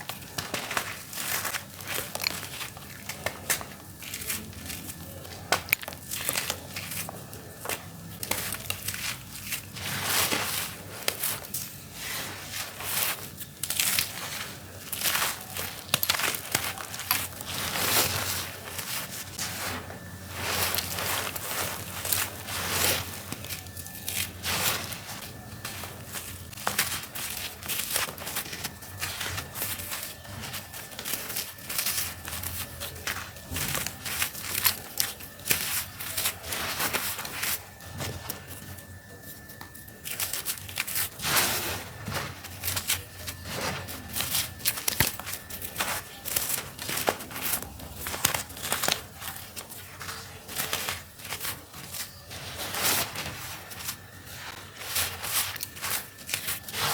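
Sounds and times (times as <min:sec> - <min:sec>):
dry dirt crunching: 0:00.0 - 0:56.9.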